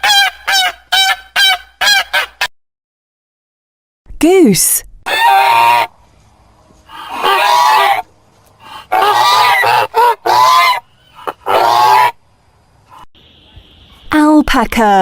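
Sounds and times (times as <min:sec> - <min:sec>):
goose honking: 0:05.1 - 0:05.9, 0:06.9 - 0:12.2.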